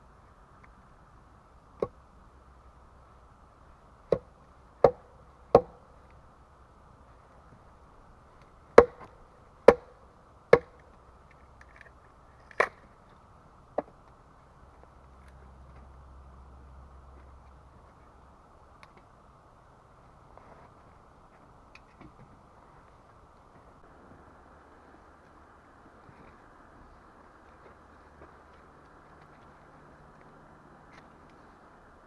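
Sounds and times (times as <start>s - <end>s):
hand tool striking wood: 4.1s - 5.8s, 8.8s - 10.8s.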